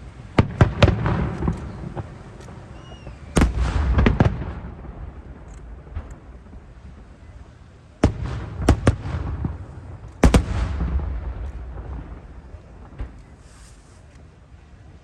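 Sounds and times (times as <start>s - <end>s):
firework shells bursting: 0.4s - 6.7s.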